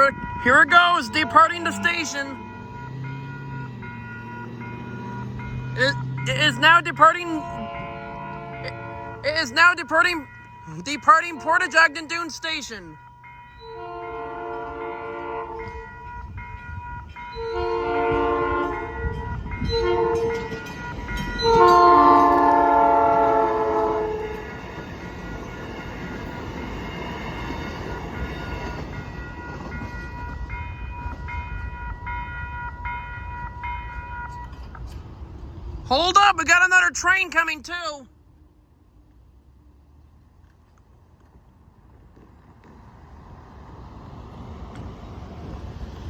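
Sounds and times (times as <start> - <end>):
crossing bell ringing: 0.0 - 34.9
train rumbling over rails: 0.0 - 37.5, 38.1 - 46.0
train horn blasts: 0.2 - 3.5, 7.4 - 9.3, 13.6 - 15.9, 17.4 - 20.6, 21.4 - 24.6.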